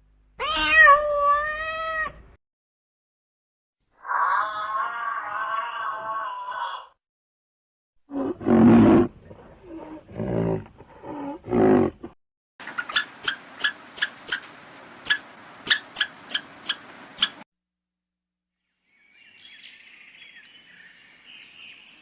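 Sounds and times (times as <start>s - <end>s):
large animal roaring: 8.1s - 12.2s
sharp short clicks or chirps: 12.7s - 17.4s.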